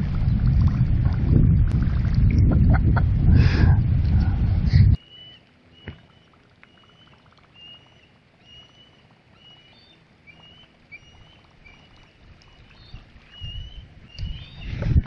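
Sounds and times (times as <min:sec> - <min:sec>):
low rumble: 0:00.0 - 0:05.0
bird chirping: 0:05.0 - 0:14.7.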